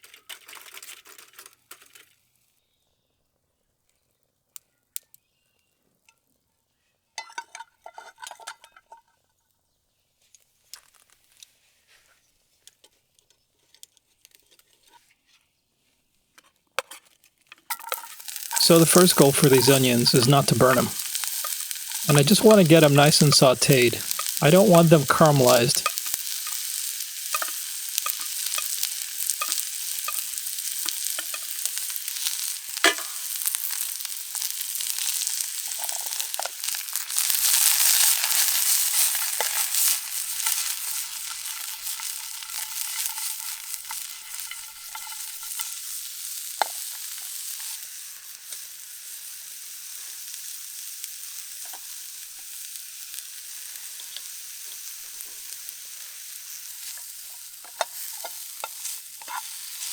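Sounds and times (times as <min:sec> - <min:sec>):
onions sizzling in a pan: 0:17.7 - 0:59.9.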